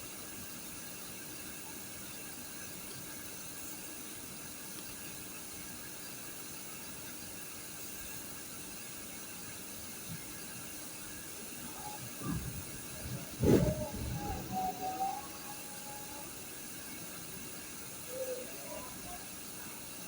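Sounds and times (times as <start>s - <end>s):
steady background hiss: 7.6s - 20.0s.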